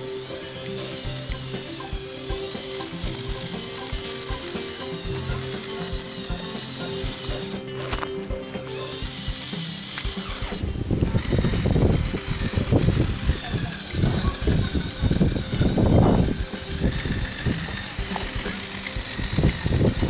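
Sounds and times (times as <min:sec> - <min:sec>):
toy motors whining: 0:00.0 - 0:20.0
plastic gears clattering: 0:08.7 - 0:20.0.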